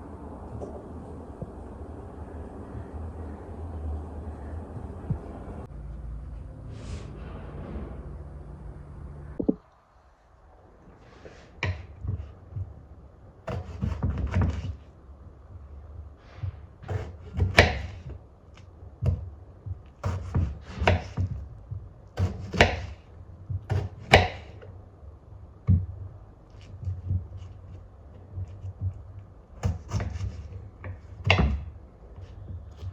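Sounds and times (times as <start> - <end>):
short scraping or rustling: 6.6 - 8.5.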